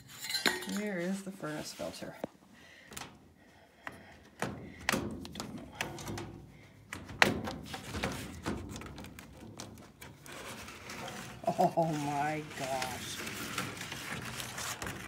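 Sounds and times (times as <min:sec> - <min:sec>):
knocks and taps on sheet metal: 0:04.4 - 0:09.7.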